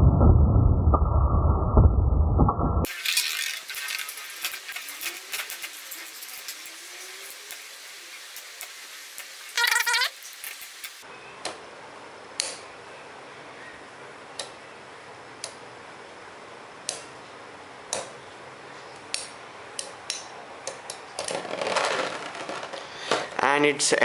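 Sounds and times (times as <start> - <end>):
metal tops clicking together: 2.9 - 11.0
spinning tops hissing: 2.9 - 11.0.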